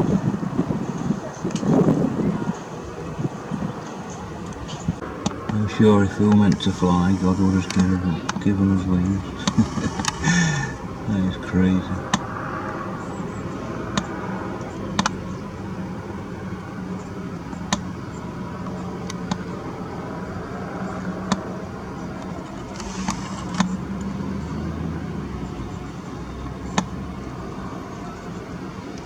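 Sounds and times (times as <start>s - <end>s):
faint hum: 0.0s - 29.0s
steady low rumble: 0.0s - 29.0s
sharp clicks: 6.2s - 8.5s, 9.4s - 10.4s, 13.9s - 15.2s, 22.2s - 24.1s.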